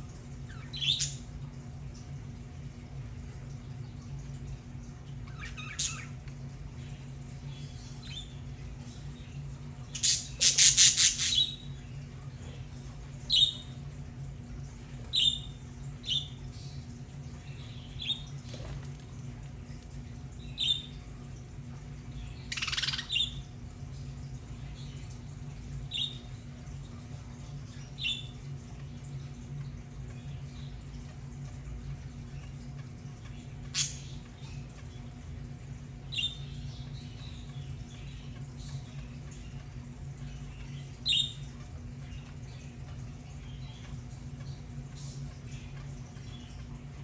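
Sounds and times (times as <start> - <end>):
steady low hum: 0.0 - 47.0
budgerigars chirping: 22.5 - 23.4.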